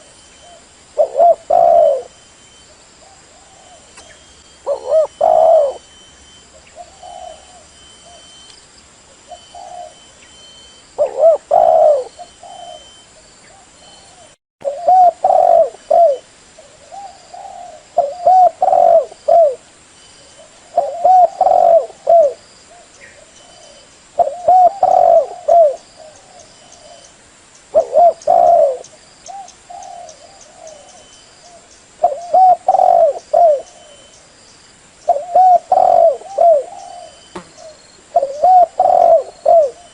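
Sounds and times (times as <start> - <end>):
dove cooing: 0.0 - 2.2, 3.0 - 8.3, 9.2 - 10.2, 11.0 - 19.6, 20.3 - 27.1, 27.7 - 34.2, 35.0 - 39.9.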